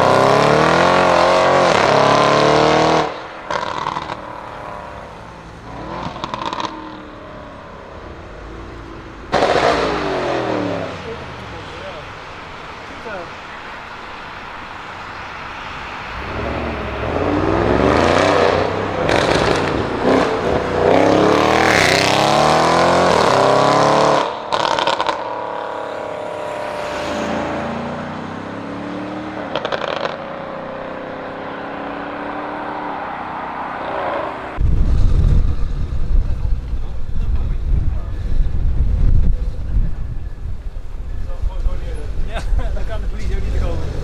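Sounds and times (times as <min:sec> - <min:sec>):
exhaust crackles: 0:00.0 - 0:32.4, 0:34.3 - 0:44.0
car engine accelerating hard: 0:00.0 - 0:38.6, 0:40.9 - 0:44.0.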